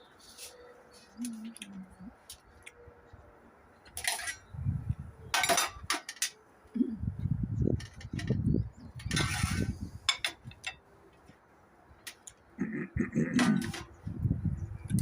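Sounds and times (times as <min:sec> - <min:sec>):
dishes and cutlery clinking: 0:04.0 - 0:04.5, 0:05.3 - 0:06.4, 0:09.0 - 0:10.8
dishes clattering: 0:05.3 - 0:06.4, 0:09.0 - 0:10.8, 0:13.2 - 0:14.0.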